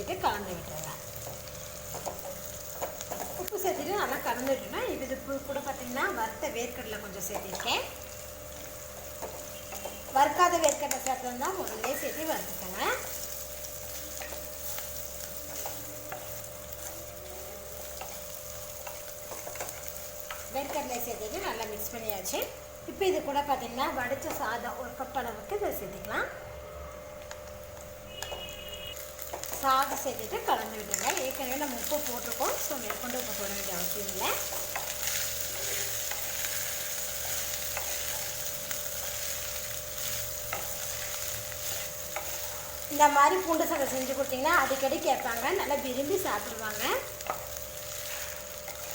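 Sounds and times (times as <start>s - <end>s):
rice sizzling in oil: 0.0s - 26.1s, 26.7s - 48.9s
frying hiss: 0.0s - 48.9s
steady hum: 0.0s - 48.9s
spatula scraping a pan: 46.8s - 48.9s.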